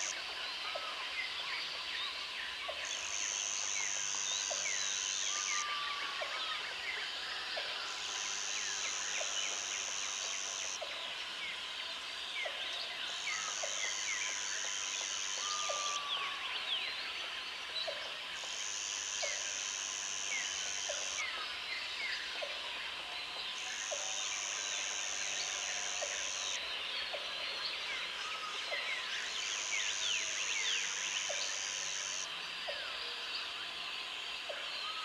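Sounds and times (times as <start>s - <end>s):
insect buzzing: 18.4s - 21.3s.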